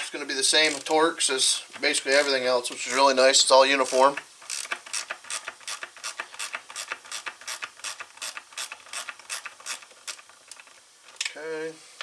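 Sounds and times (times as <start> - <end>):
ratchet clicking: 0.6 - 1.0, 3.7 - 10.7.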